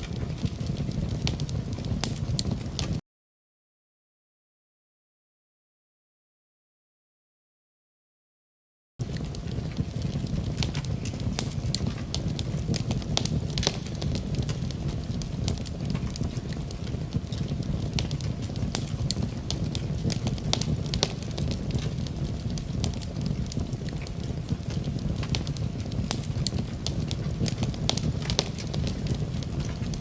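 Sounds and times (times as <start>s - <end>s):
low fire rumble: 0.0s - 3.0s, 9.0s - 30.0s
wood fire crackling and popping: 0.0s - 3.0s, 9.0s - 30.0s.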